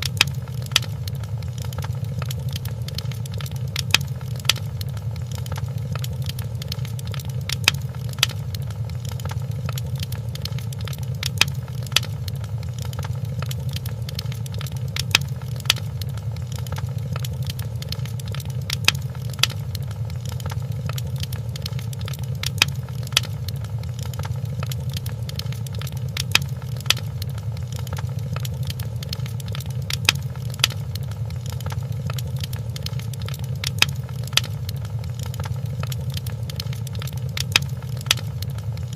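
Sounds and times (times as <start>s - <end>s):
fire snaps and pops: 0.0s - 38.9s
steady low rumble: 0.0s - 38.9s
wood fire crackling: 0.0s - 38.9s.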